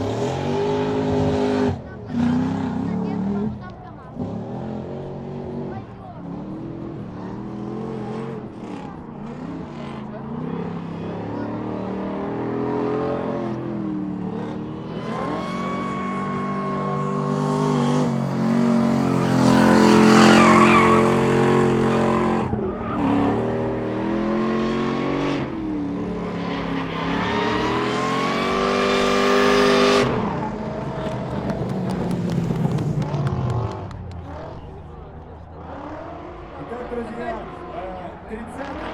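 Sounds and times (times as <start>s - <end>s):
car engines revving high: 0.0s - 38.9s
tyres squealing: 14.9s - 18.2s, 18.9s - 23.5s.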